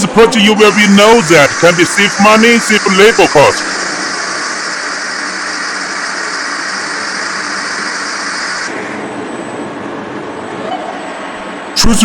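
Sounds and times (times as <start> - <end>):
factory machinery hissing: 0.0 - 12.0.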